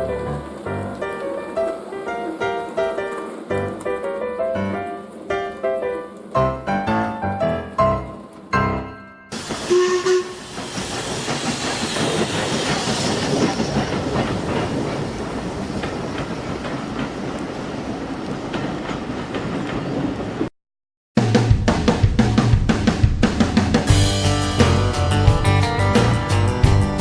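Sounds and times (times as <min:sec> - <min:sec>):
train rolling on track: 0:00.0 - 0:20.5, 0:21.7 - 0:27.0.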